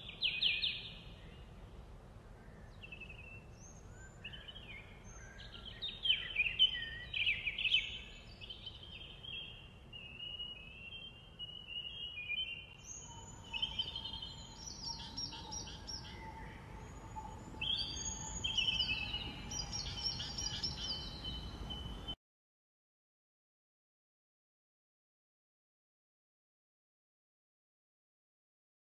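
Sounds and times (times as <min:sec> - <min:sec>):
songbirds chirping and trilling: 0:00.0 - 0:22.2
steady outdoor hiss: 0:00.0 - 0:22.2.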